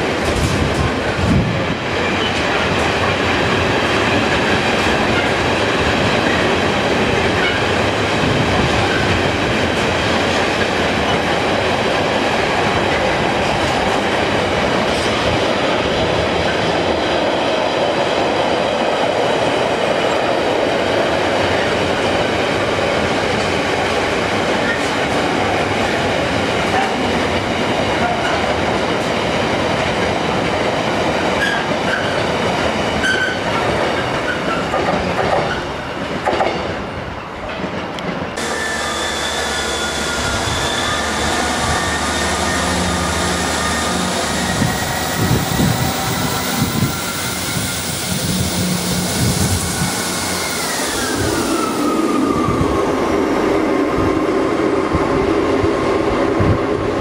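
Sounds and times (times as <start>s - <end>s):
falling whine: 38.4s - 54.6s
diesel train engine tones: 38.4s - 55.4s.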